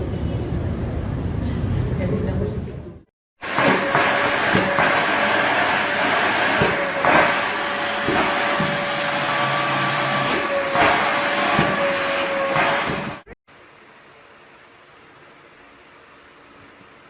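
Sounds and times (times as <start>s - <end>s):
machine whirring with high whine: 3.4s - 13.4s.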